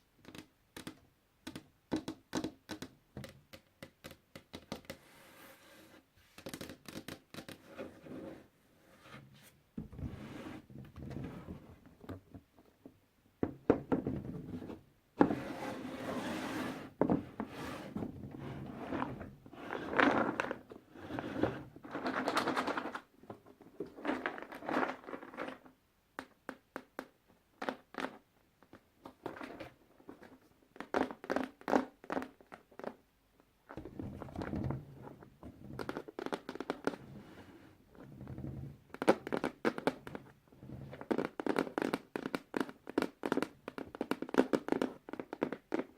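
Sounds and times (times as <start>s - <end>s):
puzzle pieces rustling and tapping: 21.9s - 23.1s, 35.8s - 37.0s.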